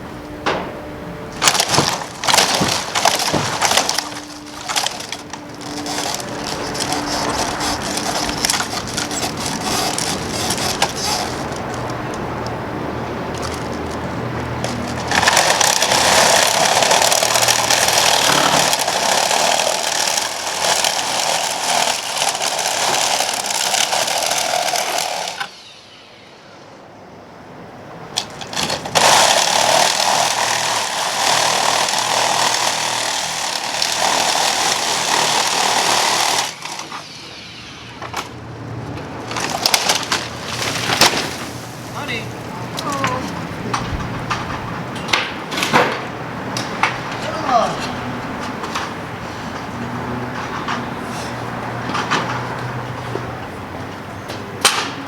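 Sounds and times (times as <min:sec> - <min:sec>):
power tool running: 0:01.3 - 0:12.4, 0:13.3 - 0:25.6, 0:28.2 - 0:37.5.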